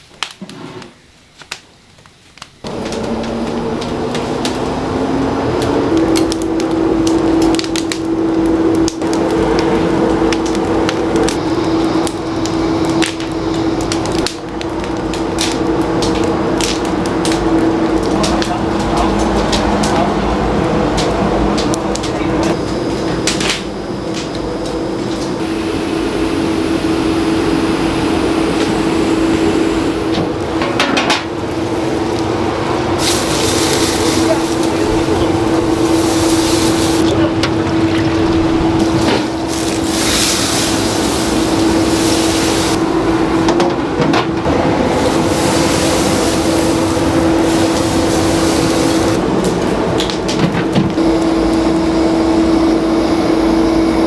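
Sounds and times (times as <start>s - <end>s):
steady mechanical hum: 0.0s - 54.0s
rushing noise: 24.7s - 50.0s
higher machine tone: 25.4s - 43.6s.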